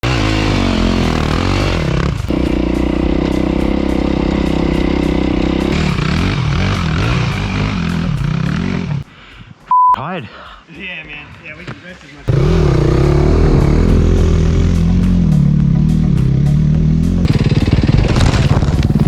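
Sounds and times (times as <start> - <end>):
dirt bike engine revving: 0.0 - 9.0, 12.3 - 19.0
short high beep: 9.7 - 10.0.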